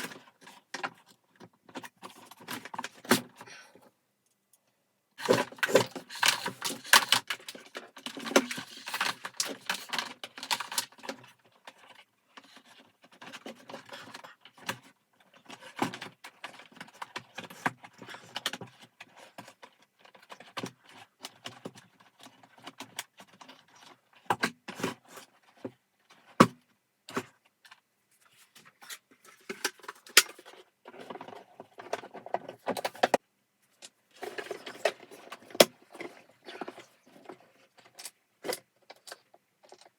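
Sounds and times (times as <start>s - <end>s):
small parts and tools clattering: 5.2s - 26.4s, 27.1s - 39.9s.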